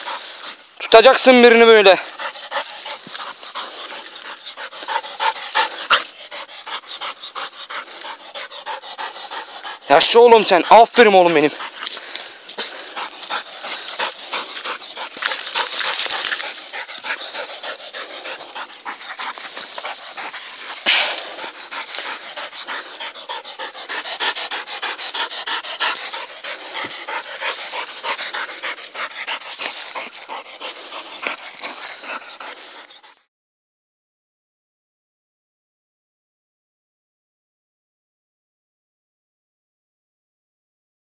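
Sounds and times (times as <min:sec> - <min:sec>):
dog panting: 0:00.0 - 0:33.3.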